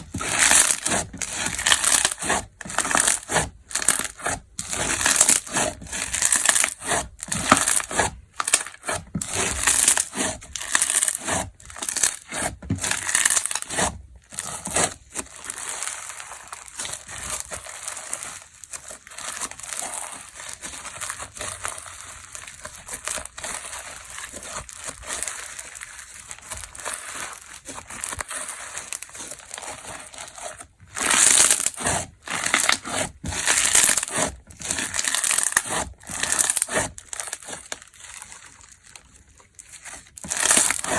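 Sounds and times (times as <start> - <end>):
crackly slime squeezed by hand: 0.1 - 40.9.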